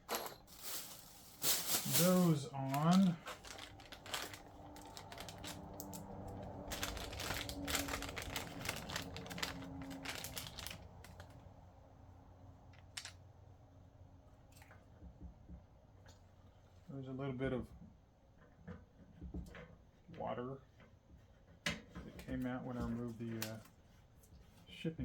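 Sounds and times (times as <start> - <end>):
plastic caps clicking and rattling: 2.7 - 6.1.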